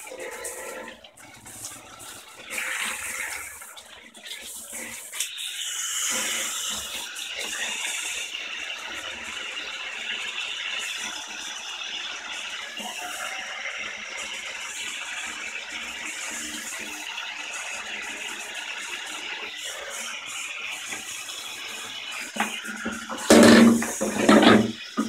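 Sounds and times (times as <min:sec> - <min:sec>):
tap water running: 0:00.0 - 0:25.0
knock: 0:23.2 - 0:24.8.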